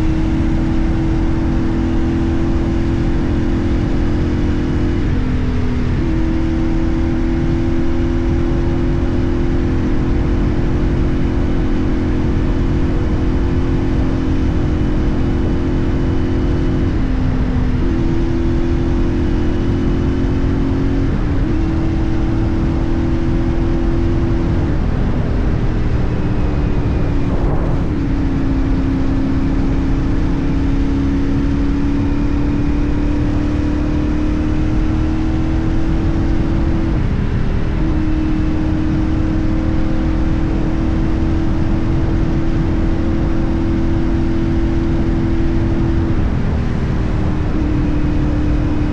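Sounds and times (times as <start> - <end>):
wind and road rumble: 0.0 - 48.9
motorcycle engine cruising: 19.7 - 28.9.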